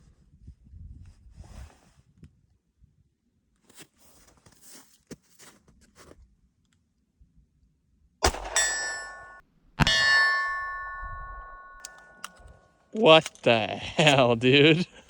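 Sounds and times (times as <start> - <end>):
loud gunshot: 8.2 - 10.2
steel target ringing: 8.2 - 12.4
handgun handling clicks and rustles: 11.8 - 14.2.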